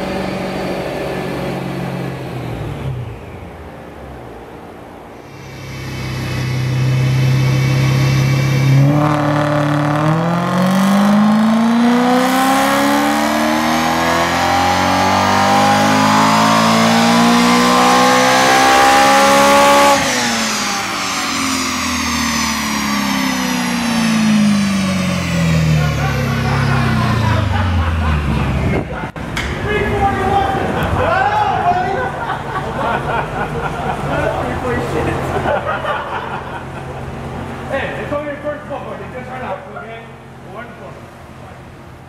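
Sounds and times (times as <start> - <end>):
car engine revving on dyno: 0.0 - 3.7, 5.2 - 29.1.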